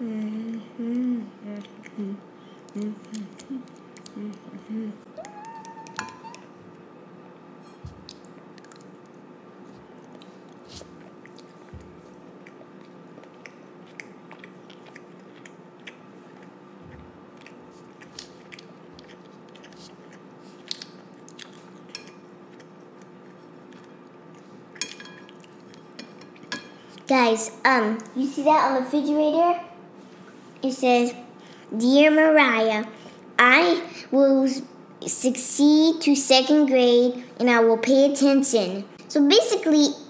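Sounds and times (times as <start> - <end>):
child chewing food: 0.2 - 6.5, 7.7 - 27.1.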